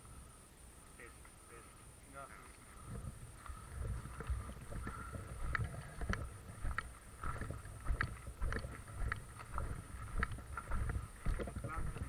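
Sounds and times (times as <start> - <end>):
footsteps walking: 2.6 - 12.0
wind rumbling on microphone: 2.6 - 12.0.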